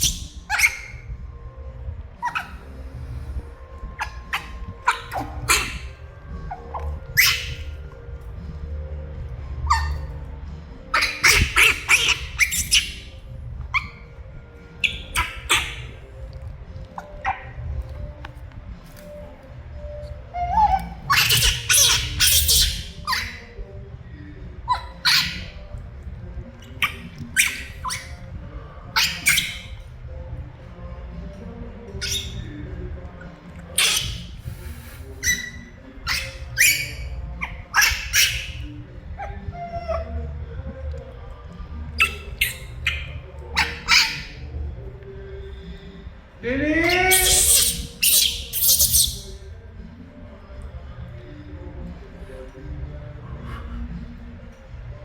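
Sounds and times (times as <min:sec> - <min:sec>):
monkey screeching: 0:00.0 - 0:01.2, 0:02.2 - 0:02.8, 0:03.8 - 0:08.0, 0:09.5 - 0:10.3, 0:10.9 - 0:14.2, 0:14.8 - 0:16.1, 0:17.0 - 0:17.6, 0:19.8 - 0:23.6, 0:24.7 - 0:25.7, 0:26.6 - 0:29.9, 0:31.9 - 0:32.8, 0:33.6 - 0:40.4, 0:42.0 - 0:44.6, 0:46.8 - 0:49.5
steady low hum: 0:00.0 - 0:29.0.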